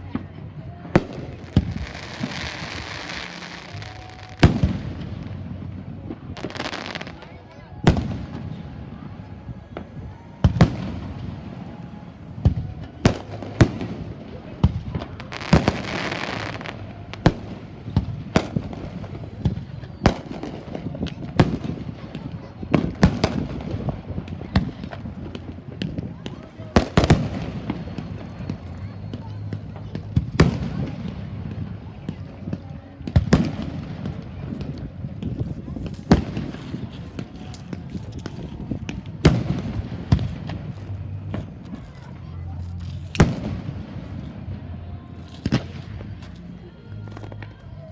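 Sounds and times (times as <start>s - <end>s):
fireworks bangs: 0.0s - 47.4s
small firework pops: 12.4s - 44.4s, 45.2s - 46.4s.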